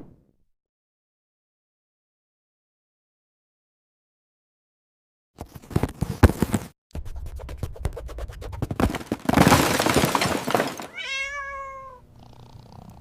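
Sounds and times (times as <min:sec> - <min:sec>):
cat meowing: 0:10.9 - 0:12.1.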